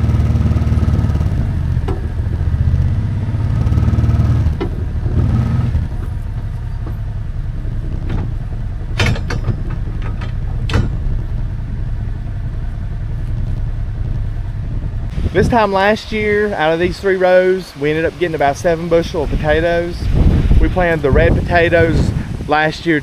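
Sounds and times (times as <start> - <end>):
engine running at low speed: 0.0 - 23.0
sharp metal clanks: 8.9 - 11.3.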